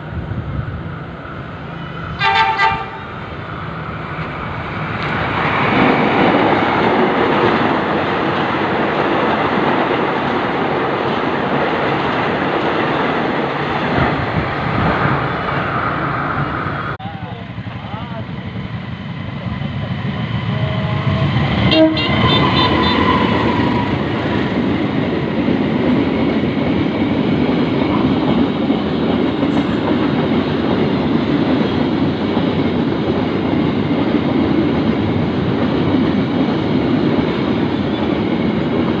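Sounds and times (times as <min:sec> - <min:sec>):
train cars rumbling and clattering: 0:00.0 - 0:39.0
train horn: 0:02.2 - 0:03.1, 0:20.6 - 0:23.8.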